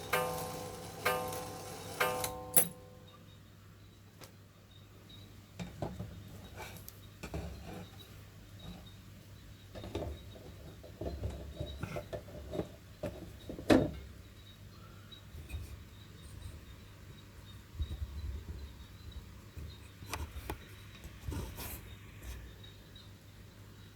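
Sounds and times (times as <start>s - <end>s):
small metal parts clicking and clinking: 0.0s - 2.9s.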